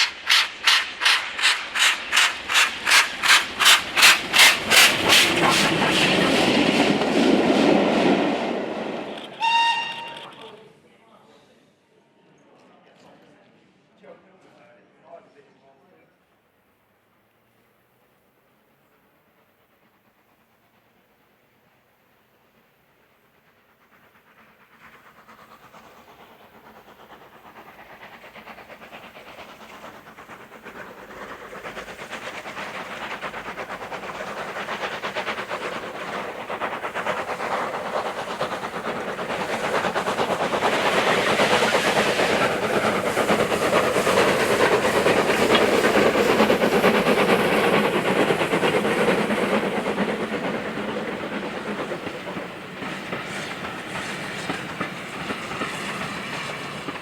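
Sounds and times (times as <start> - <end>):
steam train passing: 0.0 - 57.0.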